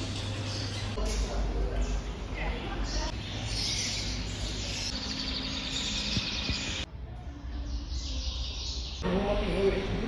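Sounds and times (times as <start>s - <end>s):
small birds chirping: 0.0s - 9.8s.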